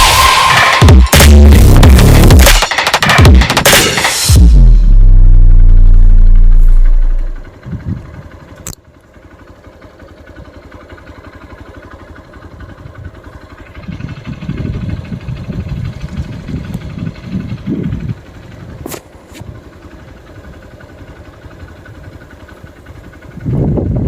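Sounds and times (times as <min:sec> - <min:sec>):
vehicle engine running: 0:00.0 - 0:24.0
loud deep music note: 0:04.3 - 0:07.5.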